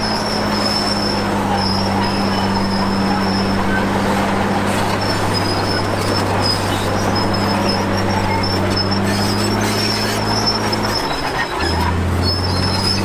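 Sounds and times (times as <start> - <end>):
heavy machinery engine drone: 0.0 - 13.0
high metallic squeal: 0.0 - 13.0.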